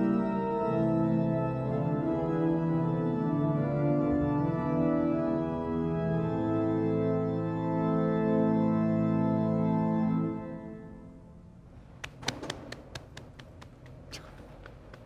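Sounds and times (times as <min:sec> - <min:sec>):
pipe organ playing sustained chords: 0:00.0 - 0:11.6.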